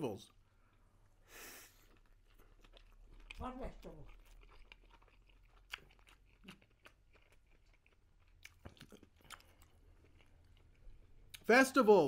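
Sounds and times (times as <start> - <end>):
faint wet chewing: 0.2 - 11.5.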